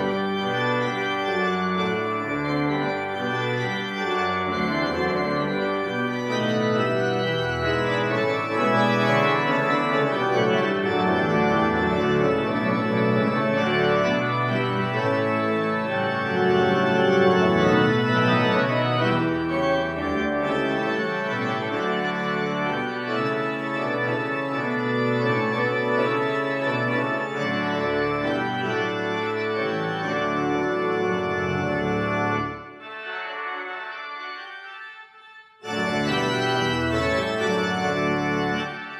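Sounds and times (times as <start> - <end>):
church reverberation: 0.0 - 38.9
pipe organ chords: 0.0 - 38.9.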